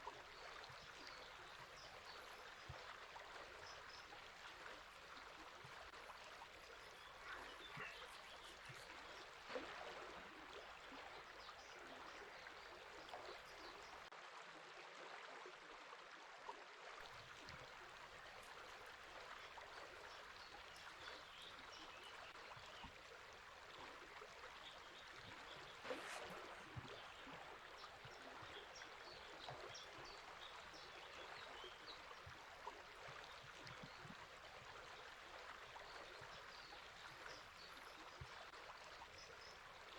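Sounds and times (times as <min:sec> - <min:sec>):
river flowing: 0:00.0 - 0:14.1, 0:17.0 - 0:39.9
faint bird chirps: 0:06.6 - 0:09.6.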